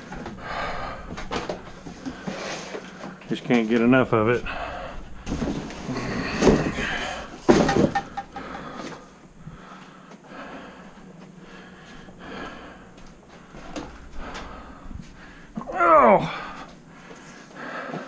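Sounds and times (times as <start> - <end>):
clunks and rattles of objects: 1.1 - 3.3, 4.6 - 9.0.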